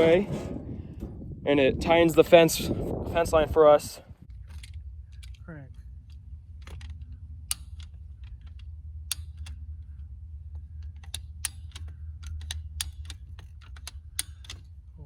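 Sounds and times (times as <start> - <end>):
steady low rumble: 0.0 - 15.0
fence stretcher ratcheting clicks: 6.0 - 9.6, 10.8 - 14.8.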